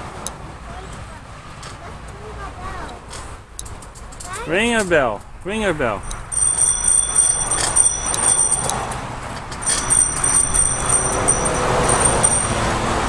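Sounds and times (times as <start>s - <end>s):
bicycle bell dinging: 5.9s - 13.0s.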